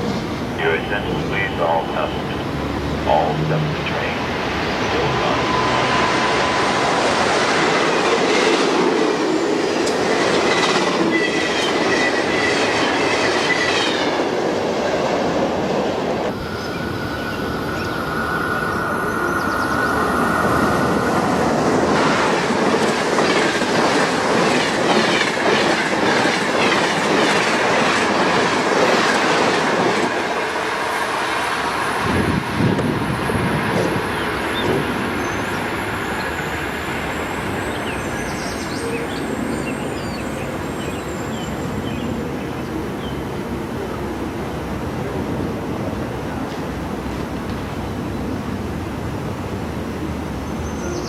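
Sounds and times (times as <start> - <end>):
train wheel squeal: 9.9 - 14.1
train wheels clicking over rail joints: 22.0 - 31.2.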